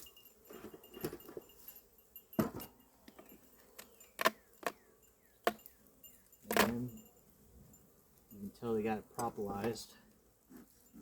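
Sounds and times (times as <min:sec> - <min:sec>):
hive tool clicking on wooden boxes: 0:05.4 - 0:06.8.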